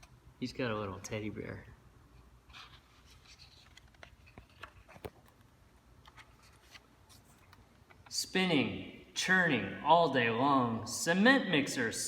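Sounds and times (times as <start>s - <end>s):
paper rustling: 2.5s - 5.4s, 6.0s - 7.6s.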